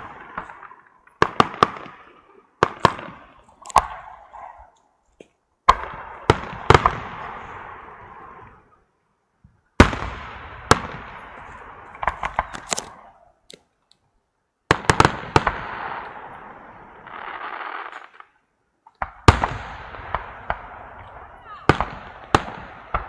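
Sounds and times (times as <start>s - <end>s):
fireworks bangs: 0.0s - 4.7s, 5.6s - 8.8s, 9.7s - 13.3s, 14.7s - 23.0s
fireworks crackling: 0.0s - 4.9s, 9.8s - 13.6s, 14.7s - 23.0s.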